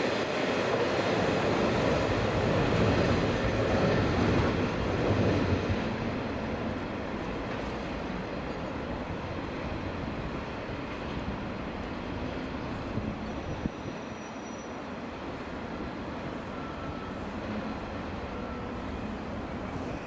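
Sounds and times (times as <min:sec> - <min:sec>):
freight train rumbling: 0:00.0 - 0:20.0.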